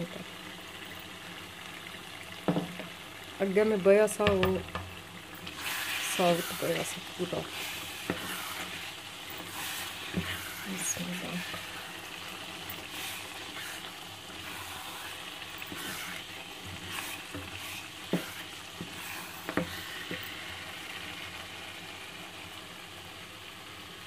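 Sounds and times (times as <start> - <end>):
curry sizzling in a pot: 0.0 - 24.0
wooden spoon scraping pot: 5.4 - 20.4.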